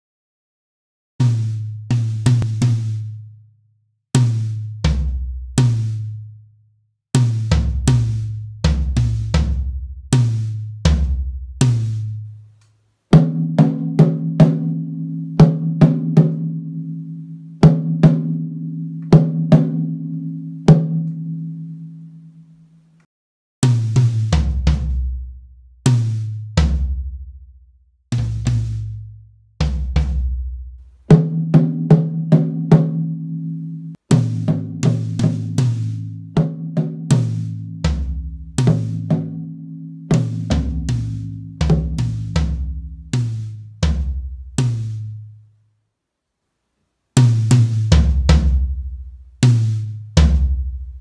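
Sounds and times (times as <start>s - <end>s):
low ringing bass drum and toms: 1.2s - 3.3s, 7.2s - 12.3s, 23.6s - 27.5s, 28.1s - 32.8s, 33.9s - 45.2s, 47.2s - 51.0s
drum kit playing syncopated phrases: 1.2s - 3.4s, 4.1s - 6.4s, 7.1s - 21.2s, 23.6s - 27.4s, 28.1s - 45.3s, 47.2s - 51.0s.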